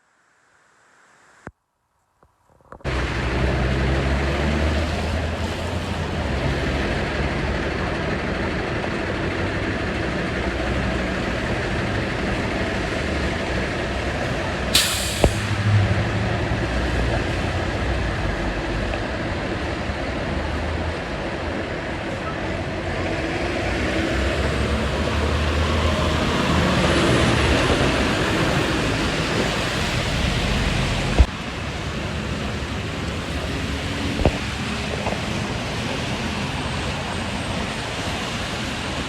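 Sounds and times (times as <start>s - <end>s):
diesel truck engine droning: 2.9s - 39.0s
air brake hiss: 14.7s - 15.8s.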